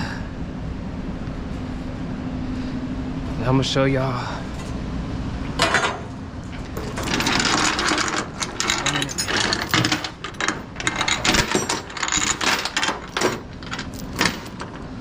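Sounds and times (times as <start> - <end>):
chain rattling and clinking: 5.6 - 15.0.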